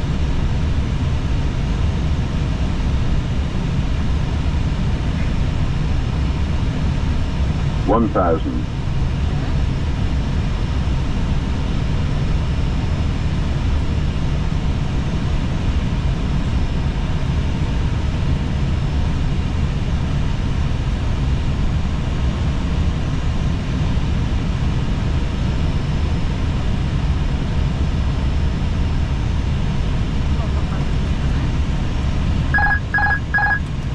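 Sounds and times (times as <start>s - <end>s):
faint steady hum: 0.0s - 14.3s, 25.9s - 33.9s
cockpit airflow and engine rush: 0.0s - 33.9s.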